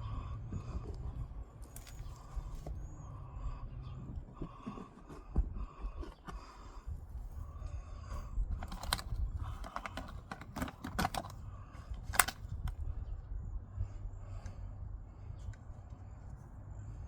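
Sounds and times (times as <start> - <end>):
low steady rumble: 0.0 - 17.0
hands clicking and rustling: 8.6 - 12.5.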